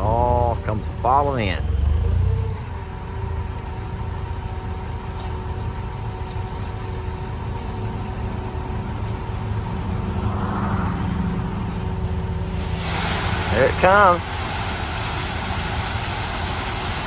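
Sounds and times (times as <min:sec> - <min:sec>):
farm machine engine rumble: 0:00.0 - 0:17.0
steady whine: 0:00.0 - 0:17.0
rushing hiss: 0:11.6 - 0:17.0.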